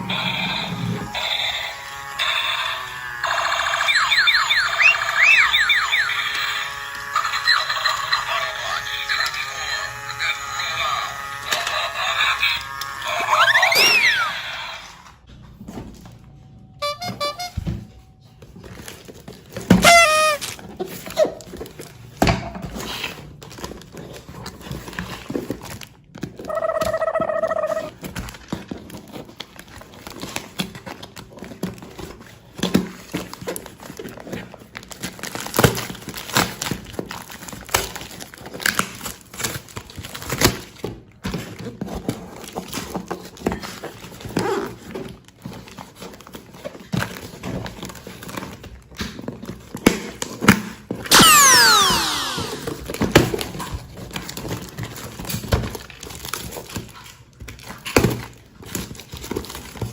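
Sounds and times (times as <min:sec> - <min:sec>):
packaging crinkling and rustling: 0:18.3 - 0:26.6, 0:27.4 - 0:51.1, 0:52.6 - 0:59.9.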